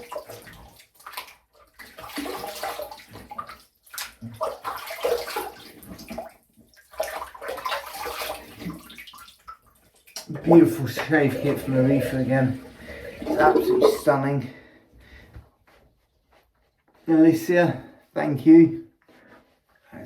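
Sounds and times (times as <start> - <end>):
water splashing in a basin: 0.0 - 14.3.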